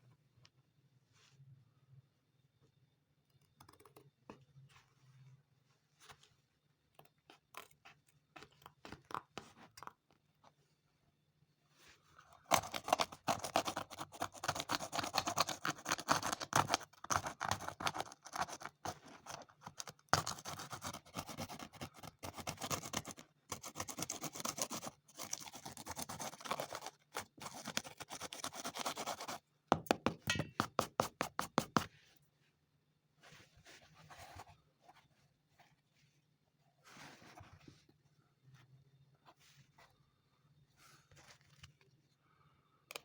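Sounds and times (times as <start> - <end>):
hand scraping a worn shoe: 12.5 - 29.9.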